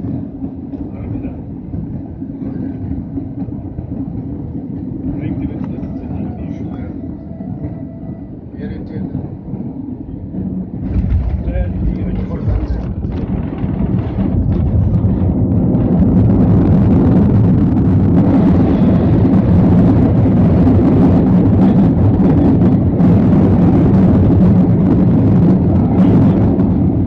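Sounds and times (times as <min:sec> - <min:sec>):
jet engines roaring: 0:00.0 - 0:27.0.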